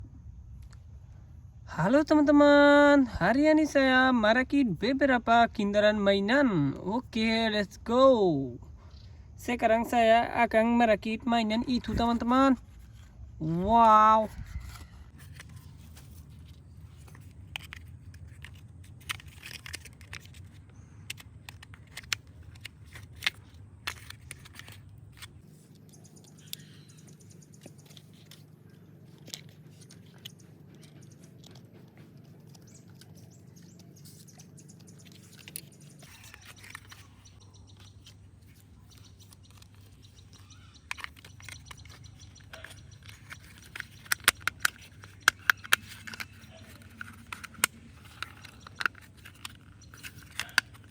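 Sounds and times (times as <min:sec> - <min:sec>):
steady low hum: 0:00.0 - 0:50.9
plastic toy parts clicking: 0:11.6 - 0:50.9.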